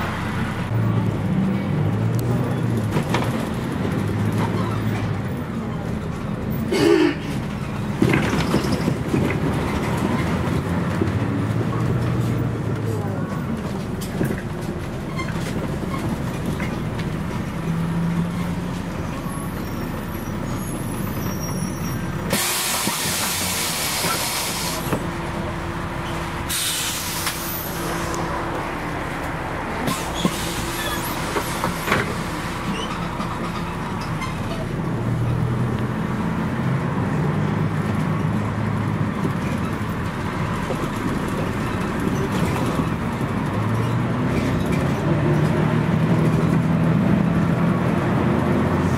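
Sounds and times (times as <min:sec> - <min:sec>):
bus diesel engine running: 0:00.0 - 0:48.9
compressed air hiss: 0:26.5 - 0:28.0.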